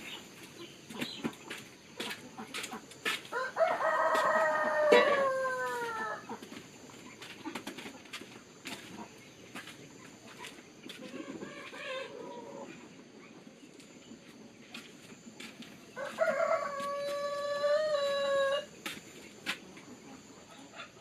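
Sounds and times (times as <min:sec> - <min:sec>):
rooster crowing: 0:03.3 - 0:06.3, 0:15.9 - 0:18.8.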